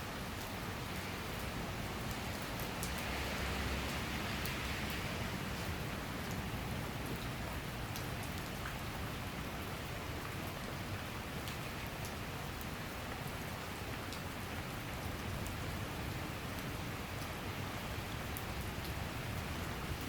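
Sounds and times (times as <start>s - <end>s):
steady rain hiss: 0.0s - 20.0s
raindrop ticks: 1.3s - 3.2s, 5.6s - 8.8s.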